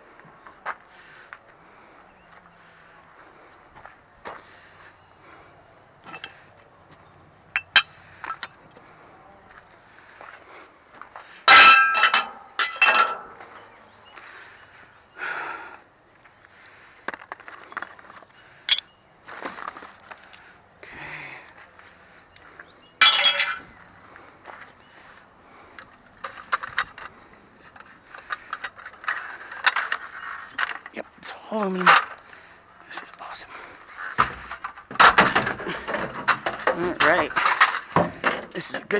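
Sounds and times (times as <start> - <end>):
scrap aluminum clanking and rattling: 6.0 - 6.4, 7.5 - 8.6, 11.4 - 13.6, 23.0 - 23.8, 31.8 - 32.4, 33.9 - 38.9
loud metal clangs: 7.5 - 8.5, 11.5 - 13.4, 23.0 - 23.7, 34.2 - 38.6.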